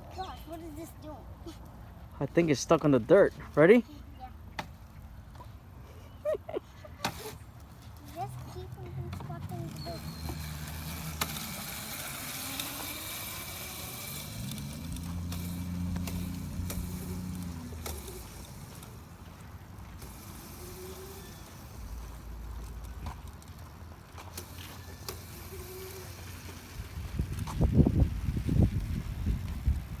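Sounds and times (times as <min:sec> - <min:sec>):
electric motor whining: 0:09.5 - 0:19.3, 0:19.9 - 0:22.6, 0:24.4 - 0:26.8.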